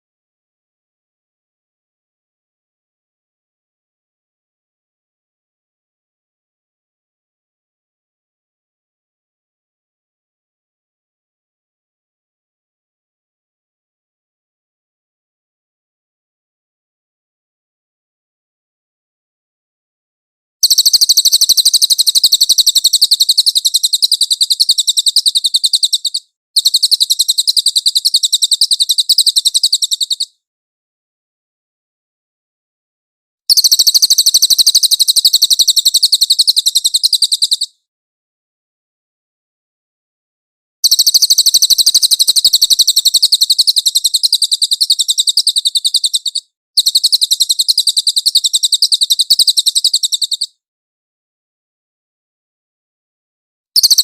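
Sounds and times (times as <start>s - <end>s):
fast trill of high chirps: 20.6s - 30.3s, 33.5s - 37.7s, 40.8s - 50.5s, 53.8s - 54.0s.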